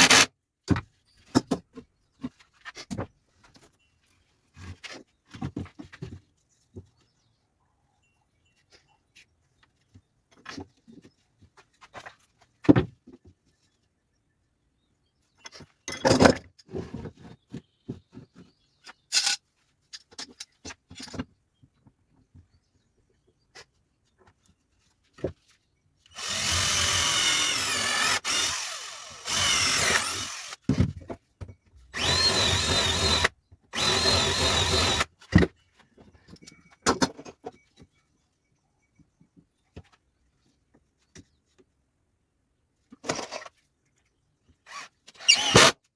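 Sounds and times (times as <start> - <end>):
power drill drilling into wood: 0.0 - 0.3, 26.1 - 30.6, 32.0 - 35.1, 44.7 - 45.8.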